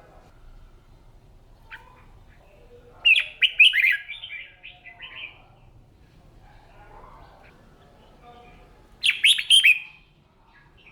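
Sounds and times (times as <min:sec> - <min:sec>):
bird singing whistled notes: 0:09.0 - 0:09.9.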